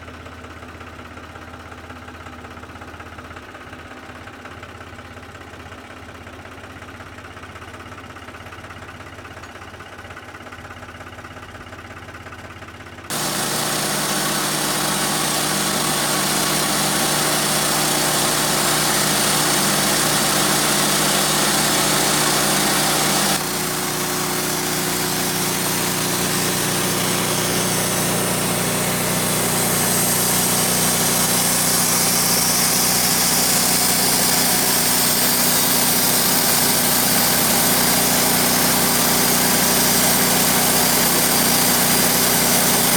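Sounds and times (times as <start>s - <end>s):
engine running: 13.1s - 42.9s.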